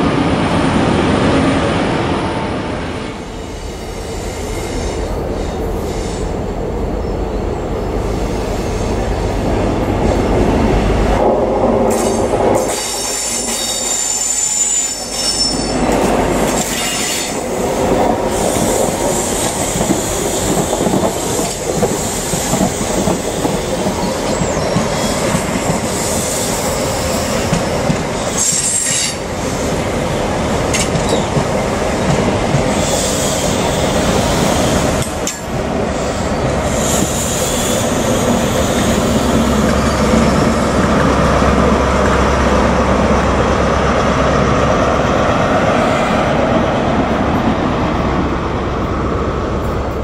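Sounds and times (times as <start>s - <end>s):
train wheel and rail noise: 0.0s - 50.0s
high wheel squeals: 12.8s - 15.8s.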